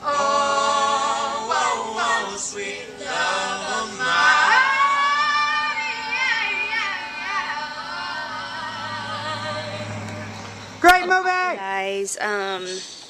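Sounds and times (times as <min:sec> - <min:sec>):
person singing high notes: 0:03.1 - 0:09.9.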